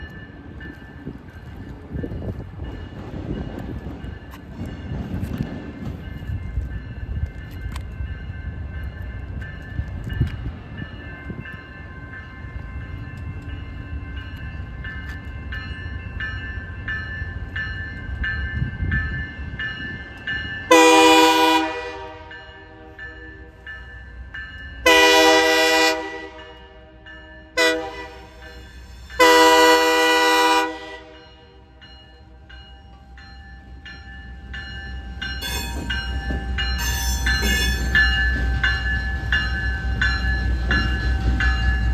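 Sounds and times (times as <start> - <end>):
locomotive air horn blasts: 20.7 - 23.0, 24.8 - 27.0, 27.6 - 28.4, 29.2 - 31.2.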